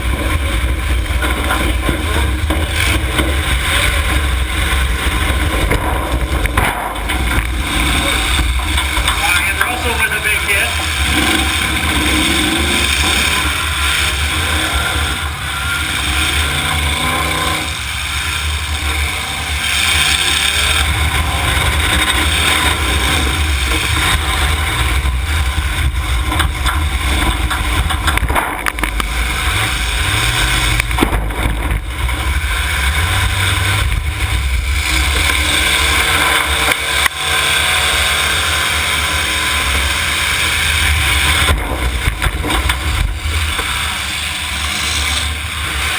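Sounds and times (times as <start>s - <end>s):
car engines revving: 0.0s - 45.9s
cars crashing knocks: 5.2s - 9.4s, 26.2s - 32.2s.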